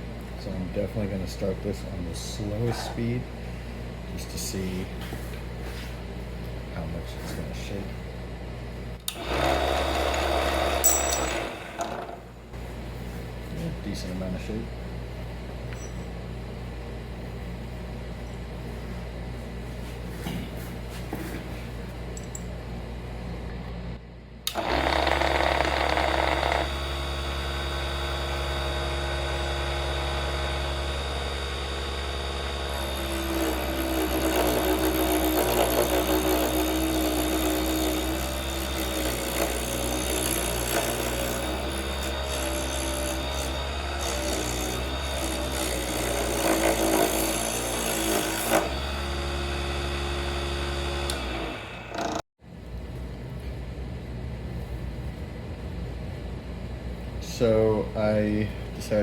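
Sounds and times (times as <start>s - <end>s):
lathe motor humming: 9.1s - 12.3s, 24.5s - 52.2s
turning tool scraping wood: 32.4s - 52.2s.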